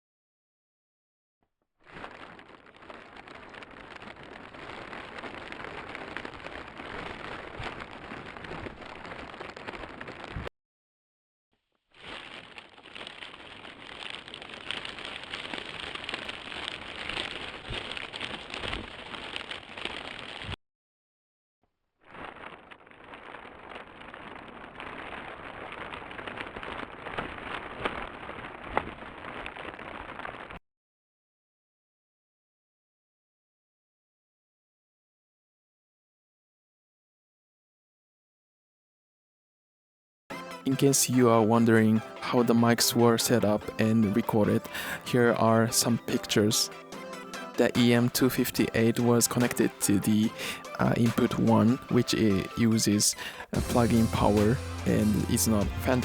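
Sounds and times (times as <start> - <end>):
plastic crackling: 1.8 - 10.5, 11.9 - 20.6, 22.1 - 30.6, 40.3 - 56.0.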